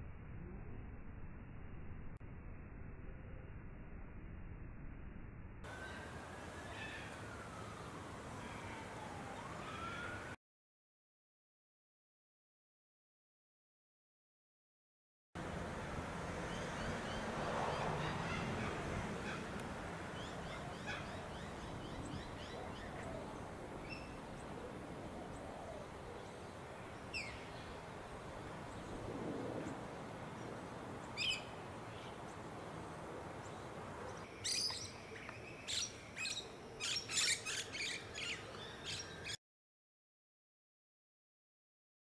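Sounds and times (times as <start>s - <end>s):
steady background hiss: 15.4s - 39.2s
small birds chirping: 16.4s - 39.4s.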